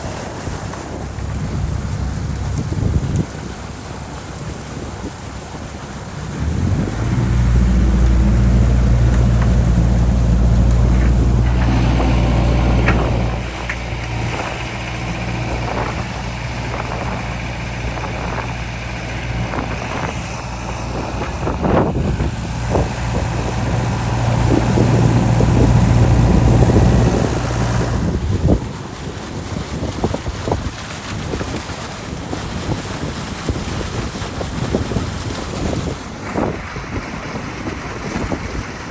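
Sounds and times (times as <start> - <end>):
excavator diesel engine: 1.0 - 29.6
knocks and clunks: 6.2 - 26.7.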